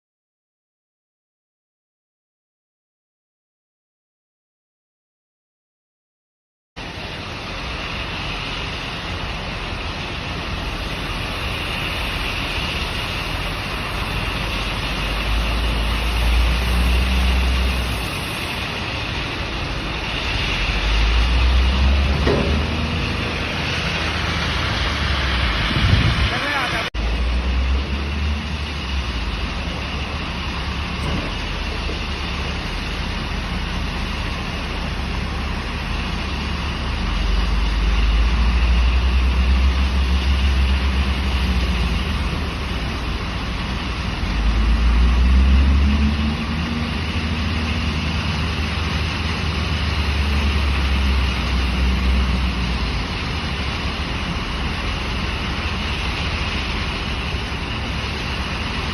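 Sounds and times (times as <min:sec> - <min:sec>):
diesel engine running: 0:06.8 - 0:58.9.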